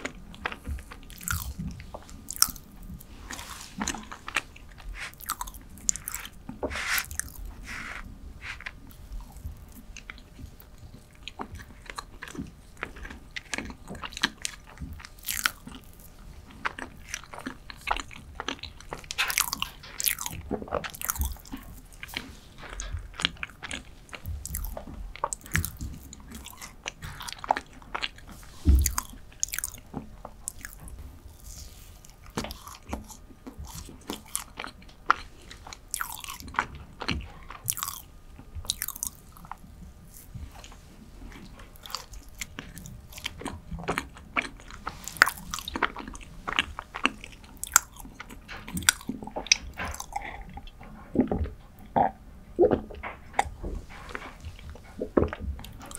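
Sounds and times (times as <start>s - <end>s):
chewing with wet mouth clicks: 0.0s - 52.0s, 52.6s - 55.9s.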